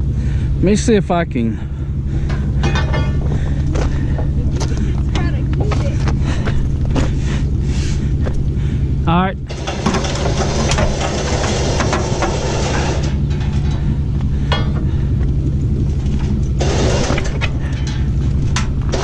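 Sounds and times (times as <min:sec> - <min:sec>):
vehicle engine idling: 0:00.0 - 0:19.0
sharp clicks and clanks: 0:09.5 - 0:14.9, 0:15.9 - 0:19.0.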